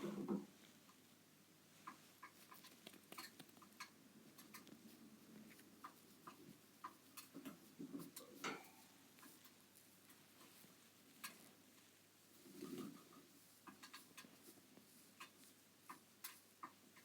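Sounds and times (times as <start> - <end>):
bird scuffling: 1.8 - 17.0.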